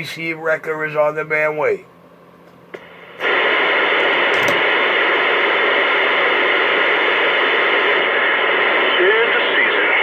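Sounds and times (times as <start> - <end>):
radio static hiss: 2.8 - 10.0.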